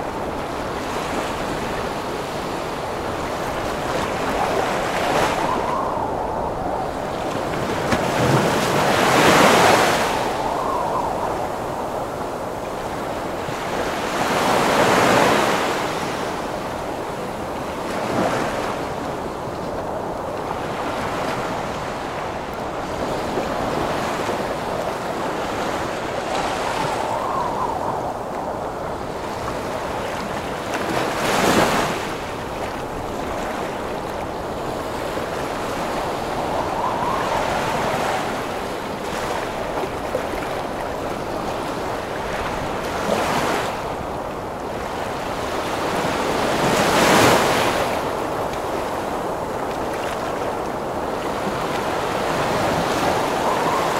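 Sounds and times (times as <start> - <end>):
howling wind gusts: 0.0 - 53.9
heavy surf breaking: 20.9 - 53.9.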